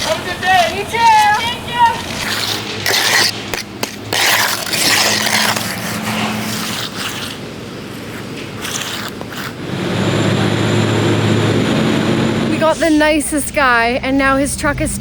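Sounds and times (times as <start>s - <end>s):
truck engine running: 0.0s - 4.2s, 7.4s - 15.0s
scraping and rustling: 0.0s - 9.6s.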